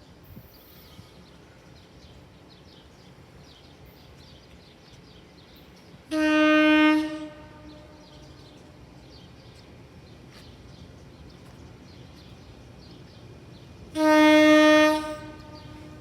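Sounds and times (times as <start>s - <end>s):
train horn blast: 6.1s - 8.6s, 13.9s - 16.0s.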